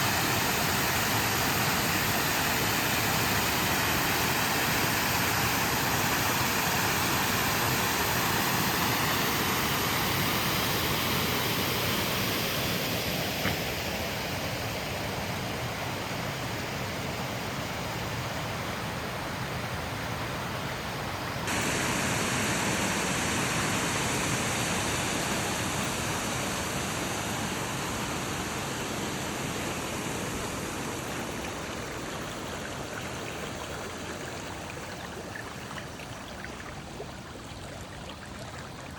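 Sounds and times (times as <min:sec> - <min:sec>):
heavy rainwater running: 0:21.4 - 0:38.9.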